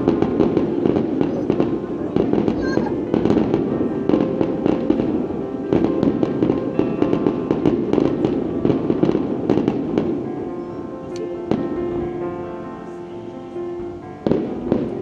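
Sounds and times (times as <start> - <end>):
fireworks bursting and crackling: 0.0 - 12.3, 14.1 - 15.0
music playing: 0.0 - 15.0.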